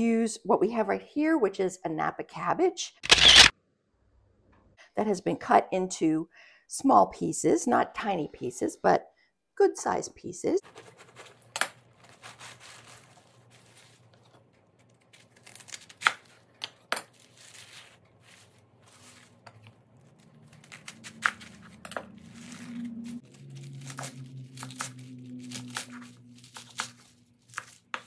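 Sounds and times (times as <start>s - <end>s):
cabbage leaves tearing and crunching: 12.0s - 28.0s.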